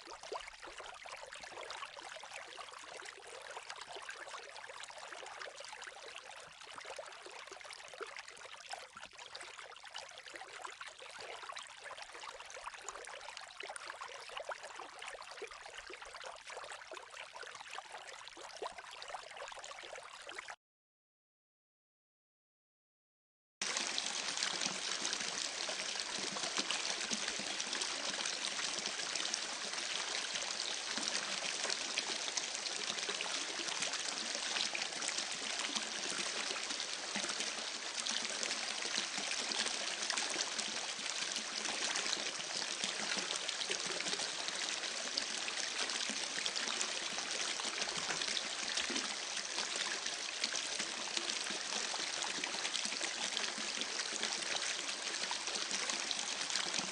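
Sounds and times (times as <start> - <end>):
running water: 23.6 - 45.2.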